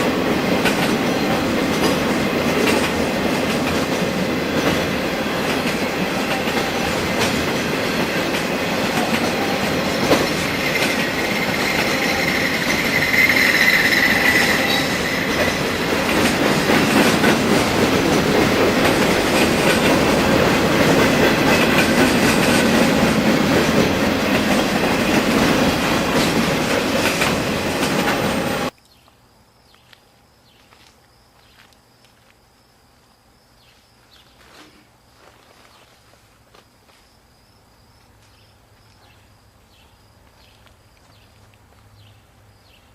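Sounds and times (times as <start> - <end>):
freight train wheels clicking on rails: 0.0 - 28.8
wheel squeal: 10.6 - 15.5.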